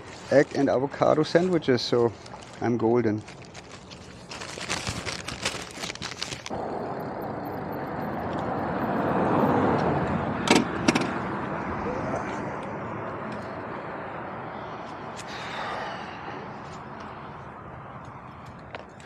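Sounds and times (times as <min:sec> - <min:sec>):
crackling handling noise: 0:00.0 - 0:06.6
road vehicle passing: 0:06.5 - 0:19.0.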